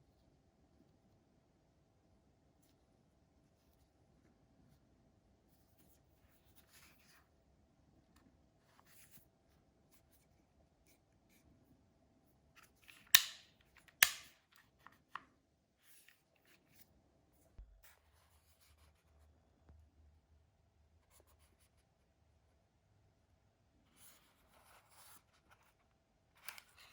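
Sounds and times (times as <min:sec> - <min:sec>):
impact driver clicks: 0:13.2 - 0:13.4, 0:14.0 - 0:14.3.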